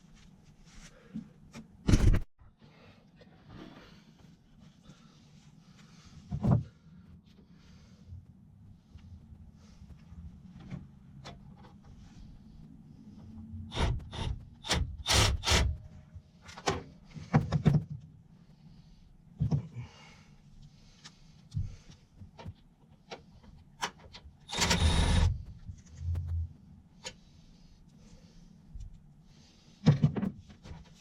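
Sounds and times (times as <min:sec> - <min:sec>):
faint low hum: 0:24.5 - 0:29.8.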